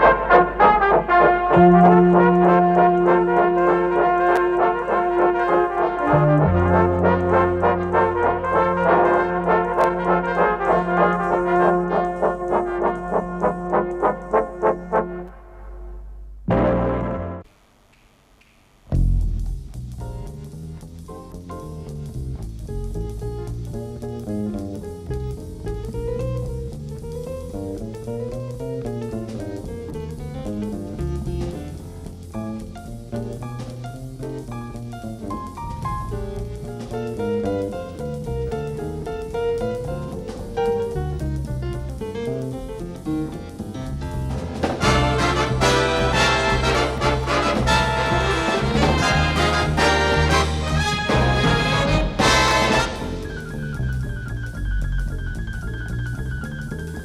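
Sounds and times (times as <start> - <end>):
brass jazz band music: 0.0 - 17.5, 19.0 - 57.0
walking bass: 0.0 - 17.5, 18.9 - 57.0
deep held bass note: 15.3 - 17.4, 18.9 - 20.9
drum kit with cymbals: 18.9 - 57.0.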